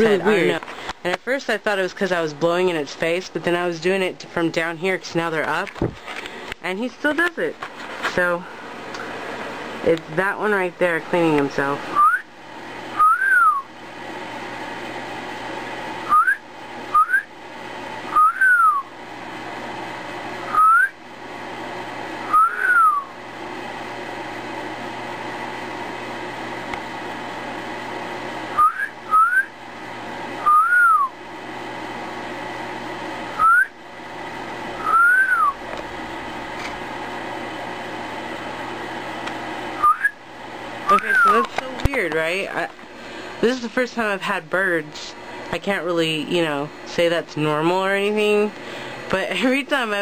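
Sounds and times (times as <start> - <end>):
person whistling short notes: 12.0 - 12.2, 13.0 - 13.6, 16.1 - 17.3, 18.2 - 18.8, 20.5 - 20.9, 22.3 - 23.0, 28.6 - 29.5, 30.4 - 31.1, 33.4 - 33.7, 34.8 - 35.6, 39.8 - 40.2.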